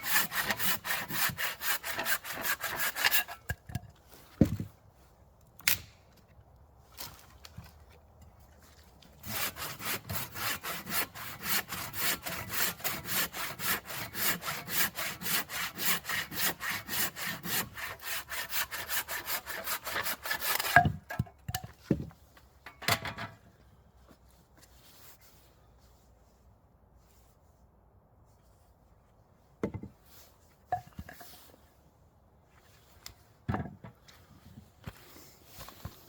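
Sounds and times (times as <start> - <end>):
hand saw cutting wood: 0.0 - 3.6, 9.2 - 21.2.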